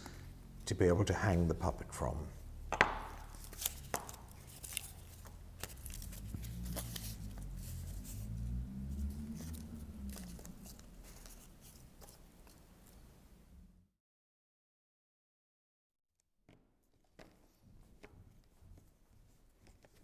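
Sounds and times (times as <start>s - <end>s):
low rumble: 5.7s - 11.8s.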